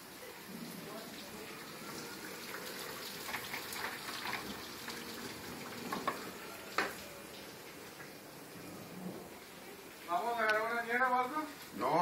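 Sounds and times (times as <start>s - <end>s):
rain falling: 0.0s - 12.0s
sharp drips and taps: 2.4s - 8.2s.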